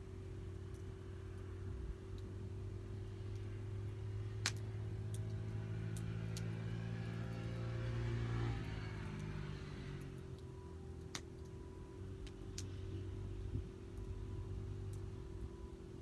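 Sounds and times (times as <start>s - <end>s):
wood fire crackling: 0.0s - 16.0s
vehicle passing: 3.0s - 11.0s.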